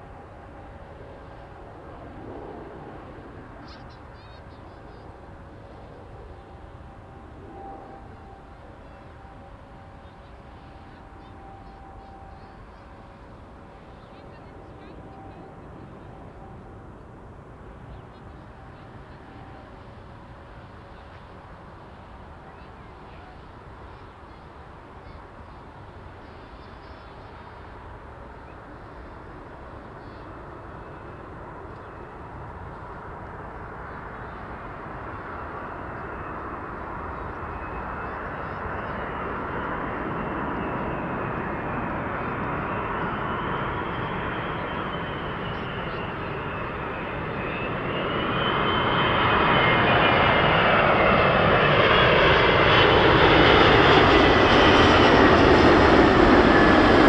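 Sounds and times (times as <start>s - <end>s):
high jet engine whine: 0.0s - 57.0s
jet engines roaring: 27.4s - 57.0s.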